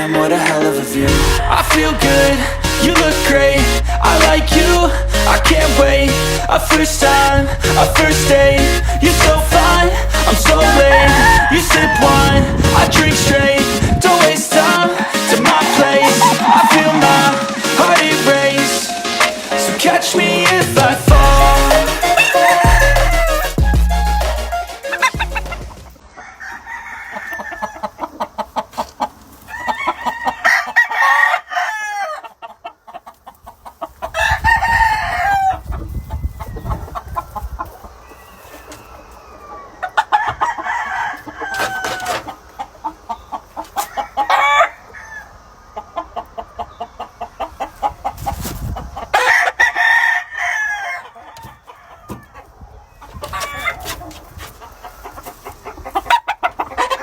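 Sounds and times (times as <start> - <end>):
hens clucking: 0.0 - 57.0
roosters crowing: 0.0 - 57.0
low rumble: 1.0 - 14.0.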